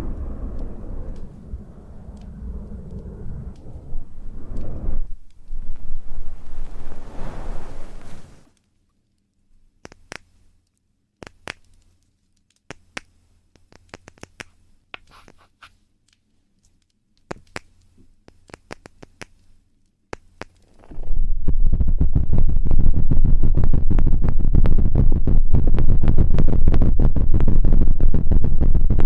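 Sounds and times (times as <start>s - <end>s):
scratching and rubbing on microphone: 3.5s - 8.5s, 13.8s - 15.8s, 20.5s - 29.0s
taps and clicks on microphone: 12.7s - 15.4s.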